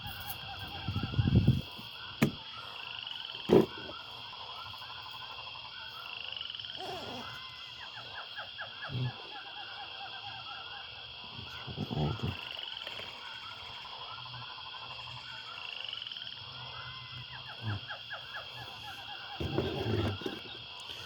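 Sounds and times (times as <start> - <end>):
chorus of frogs calling: 0.0 - 21.0
knocks and bumps of handled objects: 2.2 - 2.4, 19.4 - 20.5.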